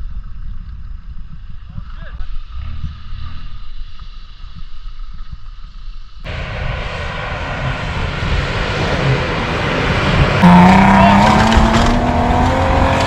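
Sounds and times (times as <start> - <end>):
off-road vehicle engine revving: 7.7 - 13.0.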